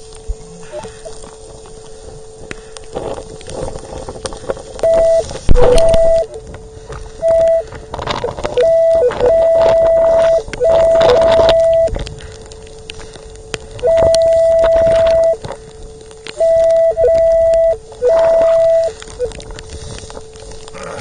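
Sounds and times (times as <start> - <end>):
wind noise: 0.0 - 21.0
surf: 0.2 - 21.0
metal detector beeping: 4.8 - 6.4, 7.2 - 11.9, 13.8 - 15.4, 16.4 - 19.4.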